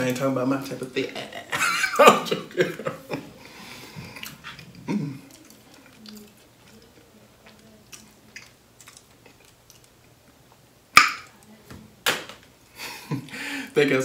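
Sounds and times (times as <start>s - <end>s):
man chewing biscuit: 3.5s - 10.8s
loud sharp snap: 11.0s - 11.3s.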